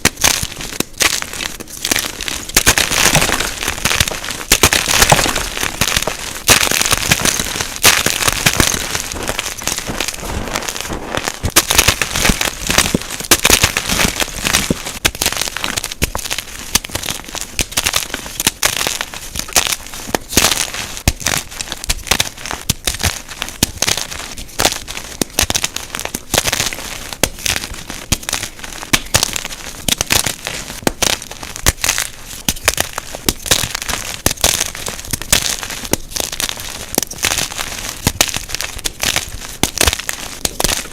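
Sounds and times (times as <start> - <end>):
chalk blocks crunching: 0.0 - 40.9.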